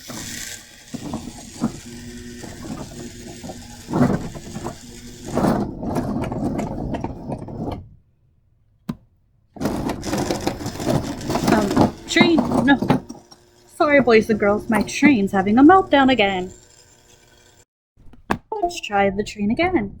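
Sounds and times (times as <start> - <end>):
toy train motor humming: 0.0 - 7.5, 9.6 - 17.7
toy train wheels clattering: 0.0 - 7.7, 9.6 - 17.6.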